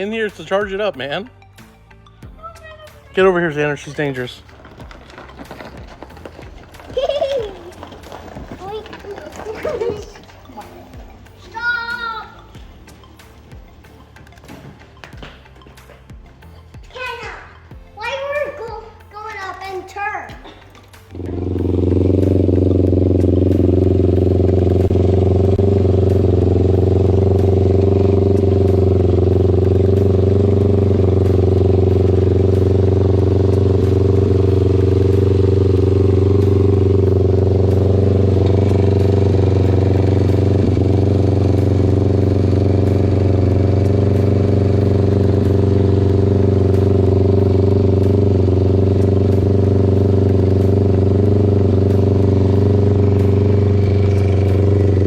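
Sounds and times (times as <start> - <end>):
engine running steadily: 20.7 - 55.0.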